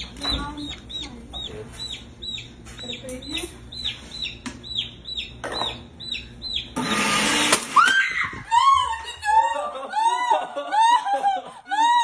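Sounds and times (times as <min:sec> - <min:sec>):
chick peeping: 0:00.0 - 0:07.4
kitchen blender running: 0:06.8 - 0:08.1
person laughing: 0:08.2 - 0:12.0.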